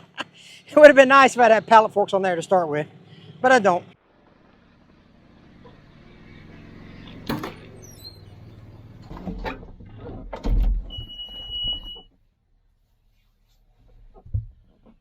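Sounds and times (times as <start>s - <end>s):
heavy metal clunks: 7.1s - 7.8s.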